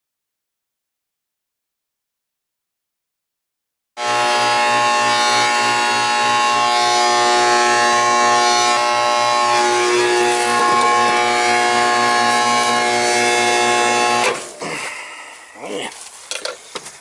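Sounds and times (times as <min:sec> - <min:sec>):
condensing unit buzzing hum: 0:04.0 - 0:14.5.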